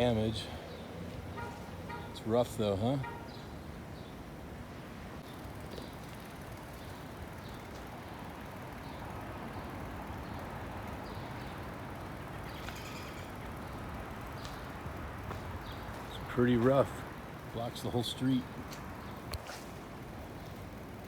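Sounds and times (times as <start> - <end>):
footsteps on pavement: 1.4 - 2.2, 7.7 - 8.0, 14.4 - 17.1, 18.5 - 20.7.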